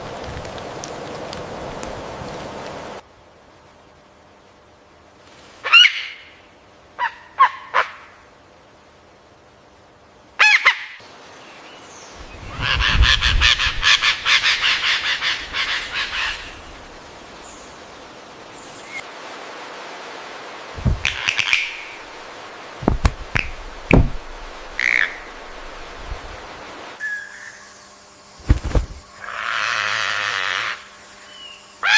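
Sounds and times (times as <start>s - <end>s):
bird calls: 10.4s - 17.9s, 20.8s - 22.2s, 22.8s - 26.3s, 27.0s - 31.9s
bird squawks: 12.5s - 16.7s, 20.9s - 22.1s, 24.7s - 25.6s
harsh repeated bird notes: 22.8s - 26.1s.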